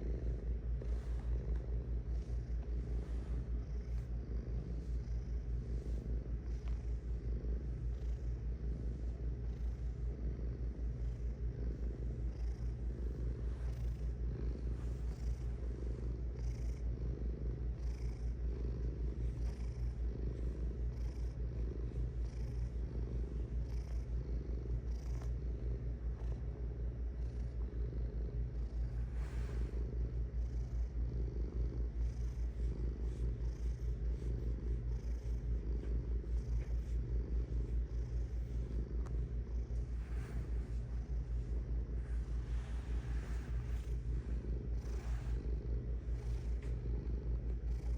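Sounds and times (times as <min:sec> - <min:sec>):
cat purring: 0:00.0 - 0:47.9.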